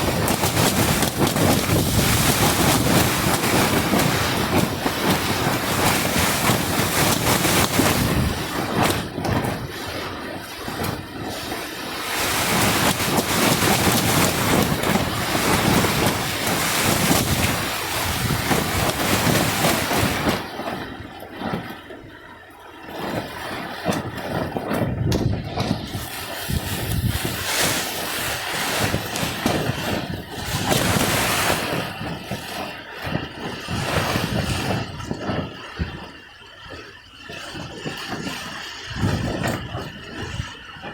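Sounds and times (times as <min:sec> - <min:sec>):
heavy rain: 0:00.0 - 0:08.9, 0:12.0 - 0:20.3
gusting wind: 0:00.0 - 0:40.9
wind buffeting microphone: 0:00.0 - 0:40.9.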